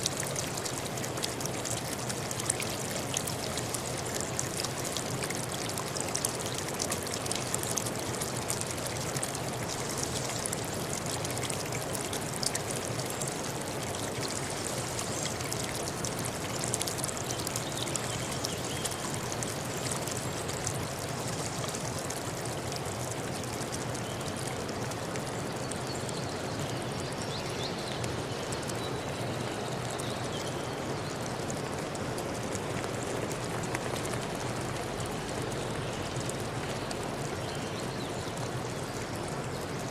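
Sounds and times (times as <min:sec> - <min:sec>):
stream water rushing: 0:00.0 - 0:25.8, 0:27.6 - 0:39.9.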